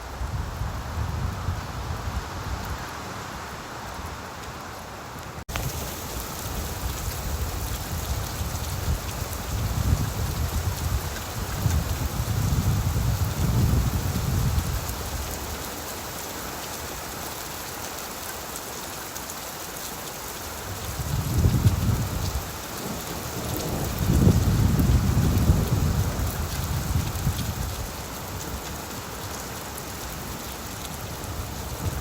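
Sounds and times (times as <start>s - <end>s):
rain falling on leaves: 0.0s - 32.0s
low rolls of thunder: 21.0s - 27.8s.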